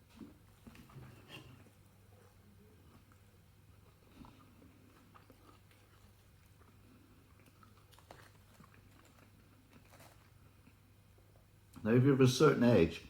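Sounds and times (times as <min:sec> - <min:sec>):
faint chewing: 0:00.0 - 0:11.8.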